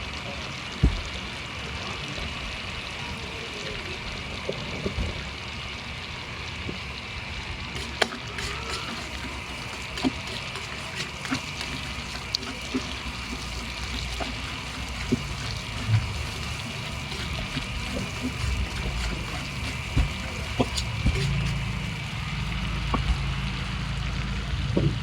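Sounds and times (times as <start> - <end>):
sauce sizzling in a pan: 5.2 - 24.6.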